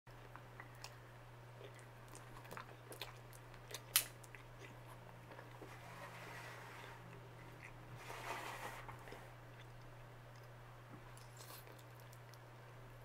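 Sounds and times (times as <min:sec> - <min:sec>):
chewing with wet mouth sounds: 0:00.1 - 0:05.7, 0:07.1 - 0:07.9, 0:09.0 - 0:12.7
steady low hum: 0:00.1 - 0:13.0.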